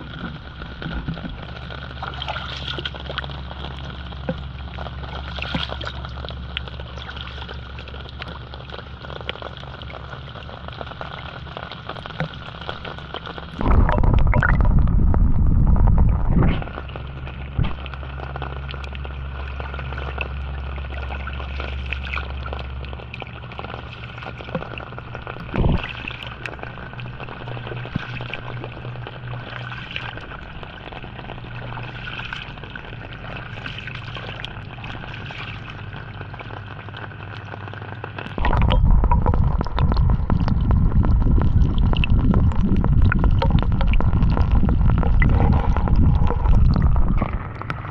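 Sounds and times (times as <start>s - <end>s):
steady rain: 0.0s - 47.9s
loud low rumble: 13.5s - 18.1s, 38.4s - 47.9s.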